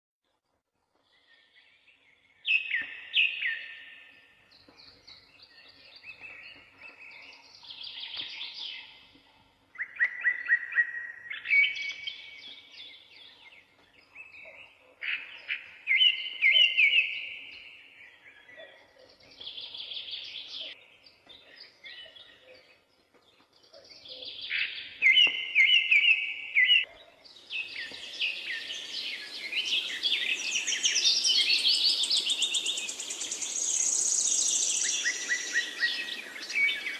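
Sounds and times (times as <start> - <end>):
songbirds singing: 0.9 - 36.9
steady high hiss: 28.0 - 36.9.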